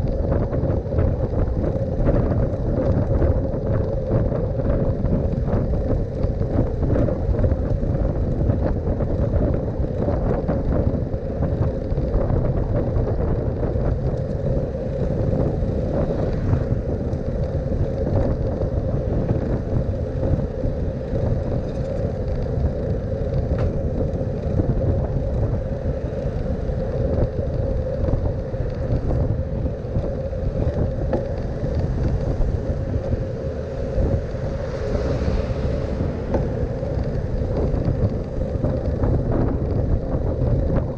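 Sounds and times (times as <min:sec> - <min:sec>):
bicycle road noise: 0:00.0 - 0:40.9
constant hum: 0:00.0 - 0:40.9
wind rumble on microphone: 0:00.0 - 0:40.9
city traffic: 0:13.2 - 0:40.9.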